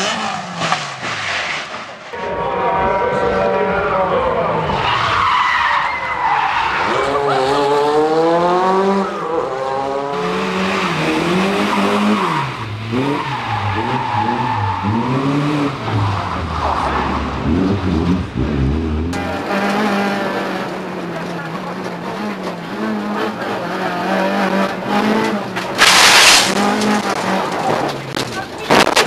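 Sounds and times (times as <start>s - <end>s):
car engine revving hard: 0.0s - 1.6s, 6.8s - 28.1s
tyres skidding: 0.0s - 29.0s.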